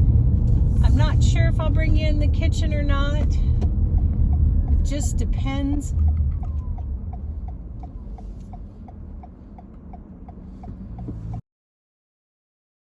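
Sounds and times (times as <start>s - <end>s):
moving car rumble: 0.0s - 11.4s
car turn signal ticking: 2.4s - 11.4s.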